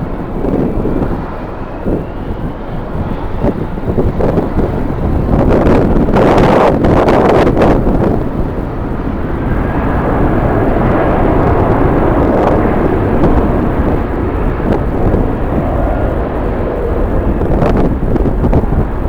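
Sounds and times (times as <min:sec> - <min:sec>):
jet engines rumbling: 0:00.0 - 0:19.0
wind on microphone: 0:00.0 - 0:19.0.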